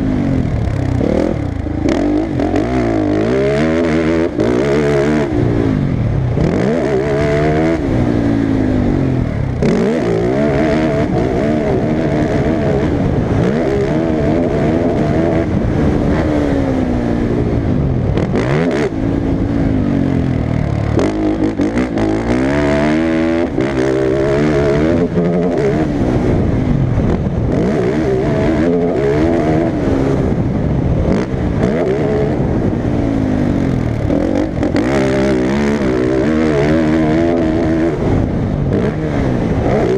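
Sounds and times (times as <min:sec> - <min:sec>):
quad engine revving hard: 0:00.0 - 0:39.9.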